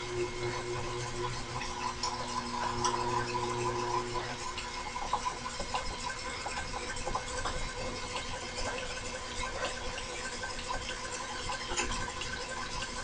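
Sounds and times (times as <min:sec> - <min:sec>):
motor humming: 0:00.0 - 0:10.3.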